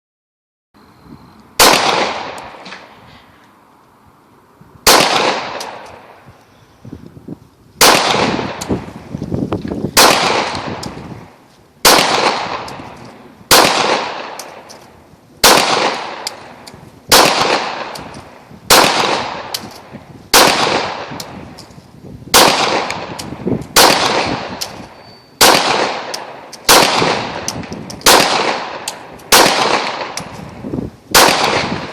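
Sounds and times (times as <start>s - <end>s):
pistol shots with echo: 1.6s - 2.8s, 4.8s - 6.2s, 7.8s - 8.9s, 10.0s - 11.0s, 11.8s - 14.8s, 15.4s - 21.4s, 22.3s - 30.4s, 31.1s - 31.9s.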